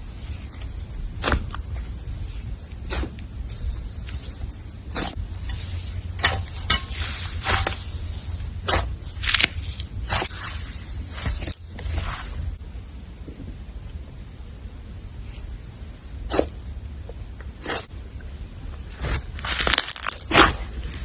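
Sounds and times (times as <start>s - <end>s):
slime crackling and squelching: 0.0s - 12.6s, 18.9s - 21.0s
steady low hum: 0.0s - 19.4s.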